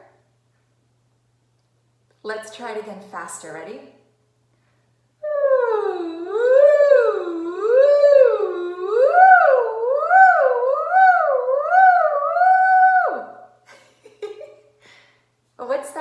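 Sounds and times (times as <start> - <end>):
woman humming vocal sirens: 5.2 - 13.5.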